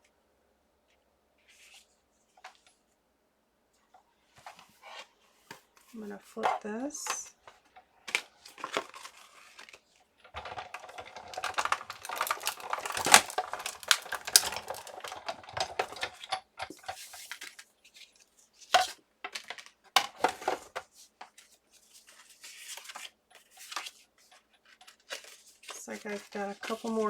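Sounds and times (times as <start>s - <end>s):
plates and cardstock clattering: 5.5s - 17.2s, 24.9s - 27.0s.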